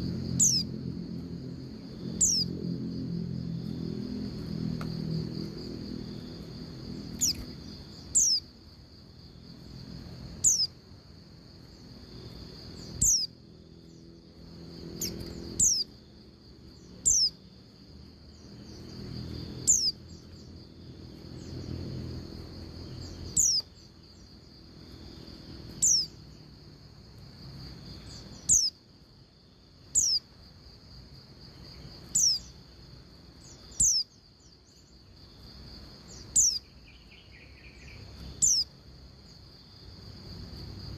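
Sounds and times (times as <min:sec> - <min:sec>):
steady high hum: 0:00.0 - 0:40.9
bird whistled calls: 0:02.2 - 0:02.5.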